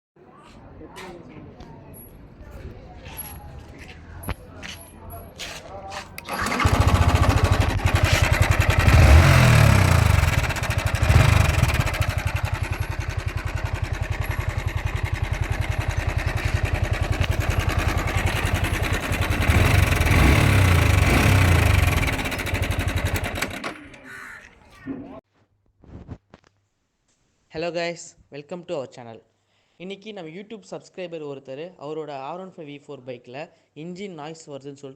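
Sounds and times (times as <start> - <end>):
motorcycle engine revving: 6.1 - 25.2.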